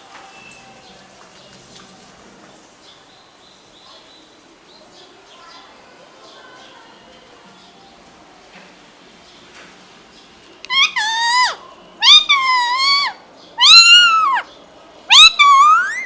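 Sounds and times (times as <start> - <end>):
parrot calling: 10.6 - 14.5, 15.1 - 16.0.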